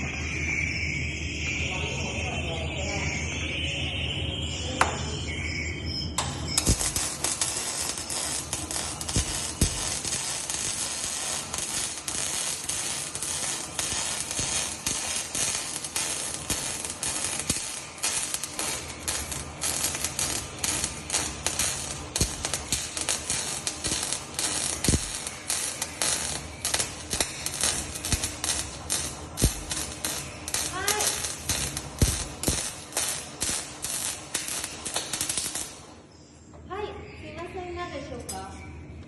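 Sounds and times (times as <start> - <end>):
welding arc popping: 6.2 - 36.1
welding arc crackling hiss: 6.2 - 36.2.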